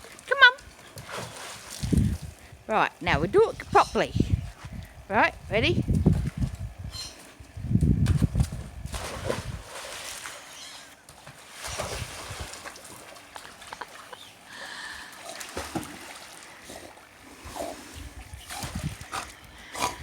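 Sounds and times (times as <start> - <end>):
dog splashing in pool water: 0.0 - 2.4, 7.8 - 20.0.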